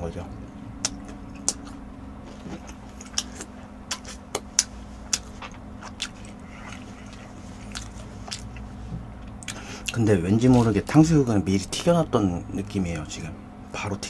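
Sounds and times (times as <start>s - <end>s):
faint low hum: 0.0s - 14.0s
crunchy chewing: 0.8s - 10.7s.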